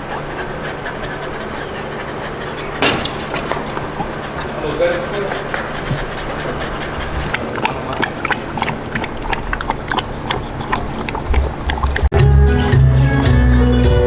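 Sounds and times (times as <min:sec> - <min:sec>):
steady background noise: 0:00.0 - 0:12.1
music with low beat: 0:12.1 - 0:14.0.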